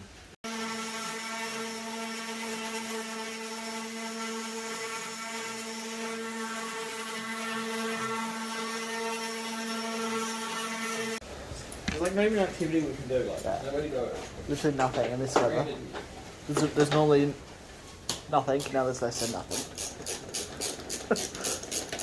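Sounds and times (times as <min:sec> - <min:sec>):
steady buzzing hum: 0:00.2 - 0:17.5.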